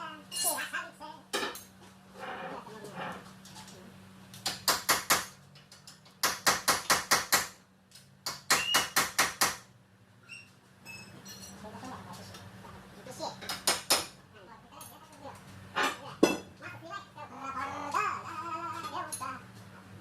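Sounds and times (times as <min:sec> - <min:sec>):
steady low hum: 0:14.3 - 0:17.6.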